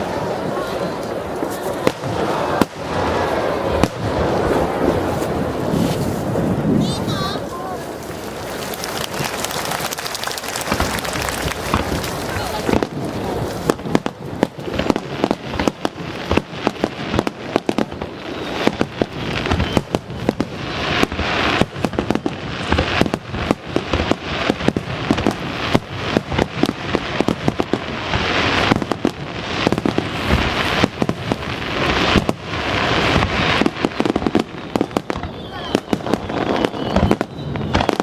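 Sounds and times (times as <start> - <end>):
fireworks crackling: 0.0 - 38.0
firework shells bursting: 7.9 - 38.0.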